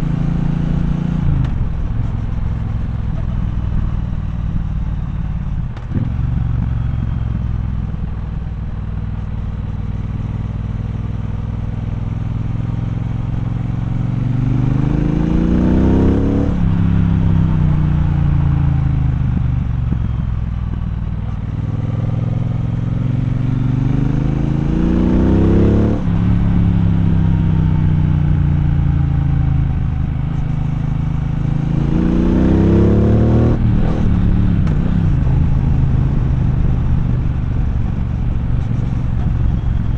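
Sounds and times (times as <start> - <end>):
motorcycle engine revving: 10.0 - 39.9.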